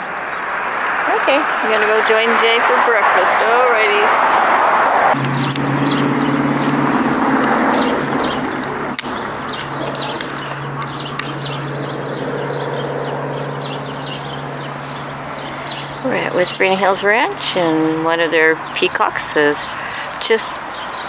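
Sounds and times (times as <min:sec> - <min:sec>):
small birds chirping: 0:05.2 - 0:21.0.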